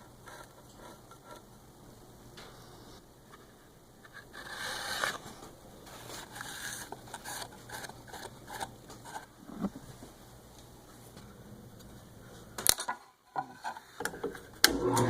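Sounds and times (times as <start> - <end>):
scraping and rubbing: 0.0 - 1.5, 3.4 - 9.9.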